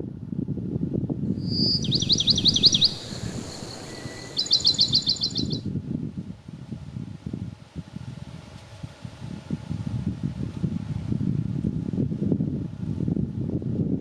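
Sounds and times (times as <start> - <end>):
wind gusts on microphone: 0.0 - 14.0
songbird singing: 1.4 - 5.6.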